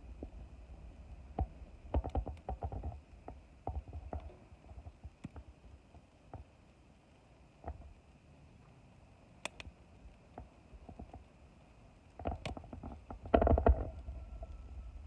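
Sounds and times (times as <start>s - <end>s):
sharp clicks and knocks: 1.4s - 5.5s, 12.2s - 14.0s
low rumble: 13.8s - 15.0s.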